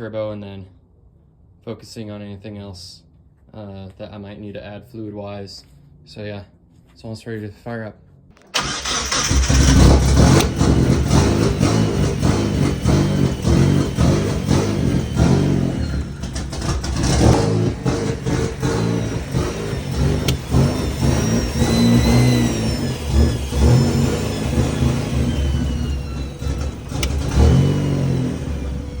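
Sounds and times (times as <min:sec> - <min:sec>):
car engine revving: 0:08.5 - 0:29.0
turbo whistles: 0:20.2 - 0:27.4.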